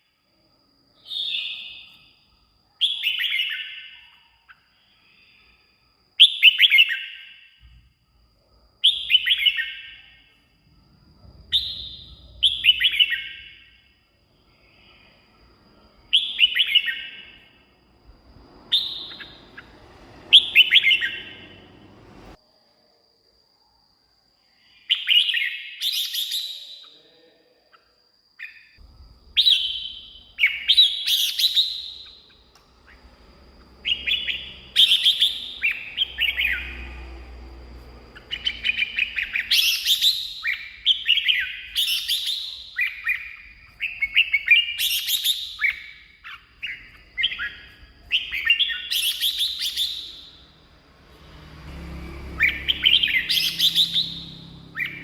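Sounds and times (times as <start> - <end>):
bird singing whistled phrases: 1.0 - 4.7, 6.2 - 7.6, 8.8 - 10.3, 11.5 - 13.8, 16.1 - 17.6, 18.6 - 21.7, 24.8 - 27.1, 28.4 - 37.1, 38.2 - 50.4, 52.4 - 55.0.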